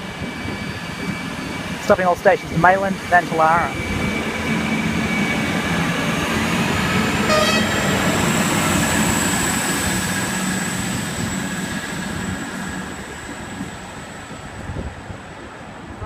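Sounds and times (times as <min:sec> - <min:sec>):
train horn toot: 0:07.2 - 0:08.2.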